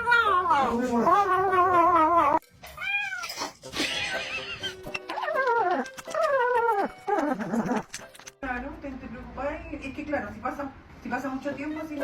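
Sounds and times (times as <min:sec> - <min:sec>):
cat yowling: 0:00.0 - 0:03.6.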